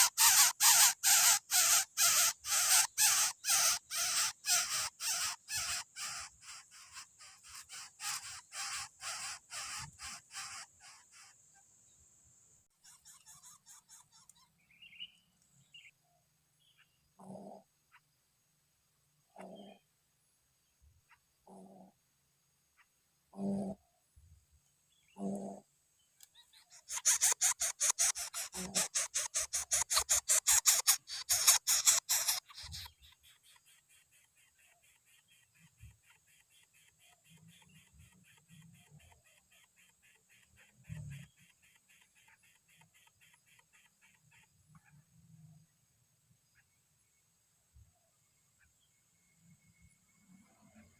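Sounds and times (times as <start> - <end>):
noisy bird calls: 0.0 - 11.6, 12.7 - 16.0, 19.2 - 19.9, 25.0 - 25.6, 26.2 - 45.6
high bird chirps: 12.8 - 16.0, 26.2 - 44.4
bird low grunt: 17.2 - 17.7, 19.3 - 19.8, 21.4 - 22.0, 23.3 - 23.8, 25.1 - 25.6.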